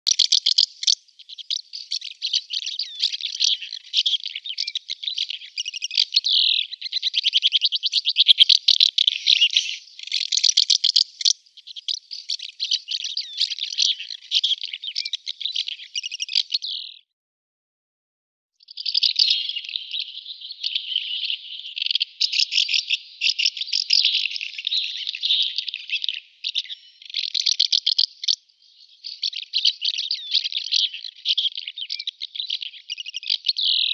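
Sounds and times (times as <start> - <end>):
swallow twittering: 0.0 - 17.0, 18.6 - 33.9.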